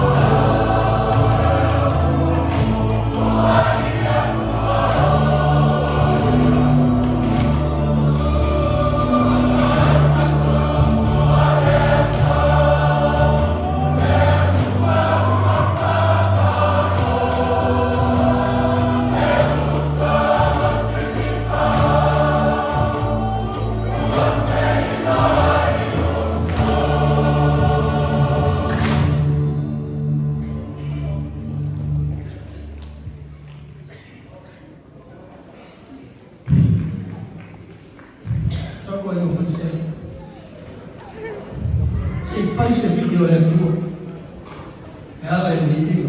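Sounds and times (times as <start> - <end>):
choir singing a hymn: 0.0 - 31.1.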